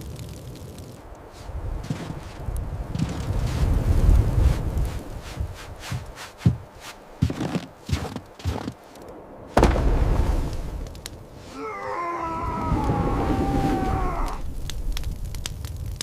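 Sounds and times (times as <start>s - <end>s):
irregular knocks and thuds: 5.4s - 8.8s, 9.6s - 10.3s.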